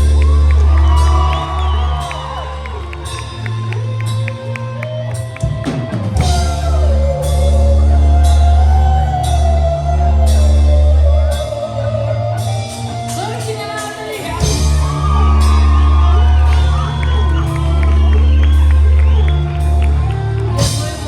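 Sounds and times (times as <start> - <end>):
heavy low guitar chords: 0.0 - 21.0
drums with cymbal crashes: 5.7 - 7.5, 12.7 - 17.9.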